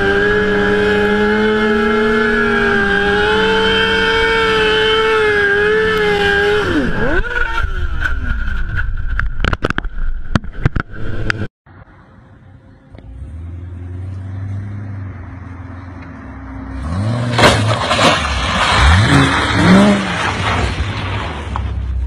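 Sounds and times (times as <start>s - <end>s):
car engine revving: 0.0s - 8.1s, 12.5s - 21.7s.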